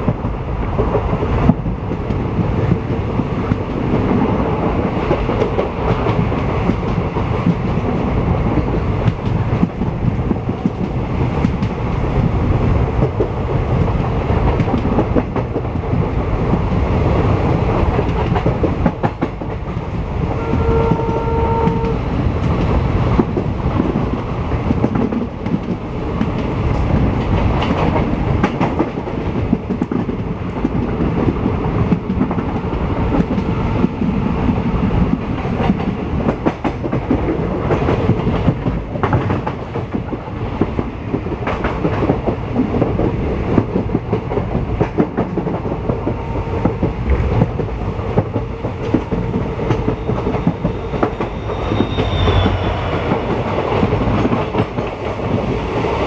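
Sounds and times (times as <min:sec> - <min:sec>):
train wheels clattering: 0:17.7 - 0:56.0
train horn blast: 0:20.4 - 0:22.1.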